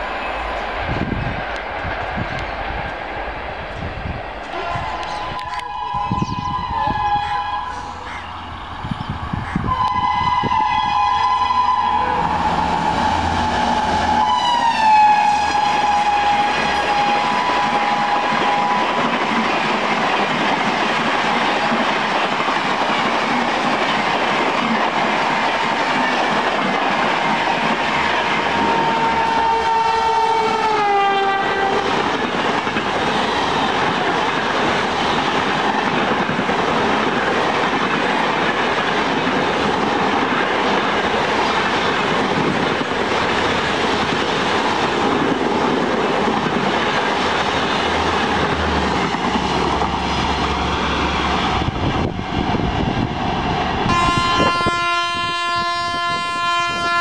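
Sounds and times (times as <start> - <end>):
train coaches rushing and rattling: 0.0 - 57.0
two-note train horn: 4.5 - 8.1, 9.6 - 19.1, 28.4 - 32.0, 53.9 - 57.0.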